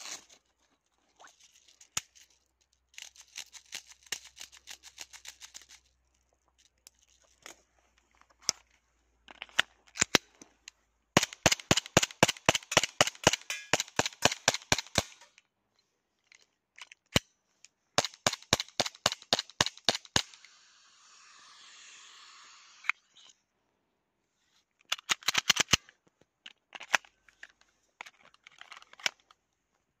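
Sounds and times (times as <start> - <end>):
steady gas hiss: 20.3 - 22.9.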